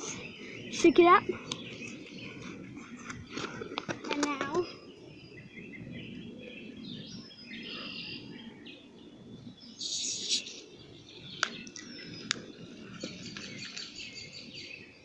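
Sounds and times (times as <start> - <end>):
birds chirping: 0.0 - 15.0
outdoor background noise: 0.0 - 15.0
short loud hiss: 9.8 - 10.5.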